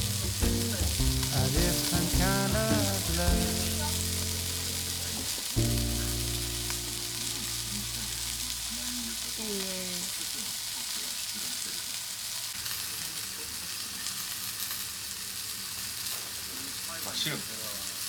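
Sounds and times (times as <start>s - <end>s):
pop song: 0.0s - 6.3s
meat sizzling on a grill: 0.0s - 18.0s.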